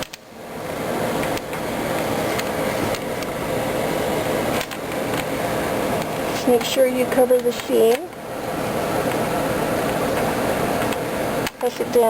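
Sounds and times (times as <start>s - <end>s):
fan running: 0.0s - 12.0s.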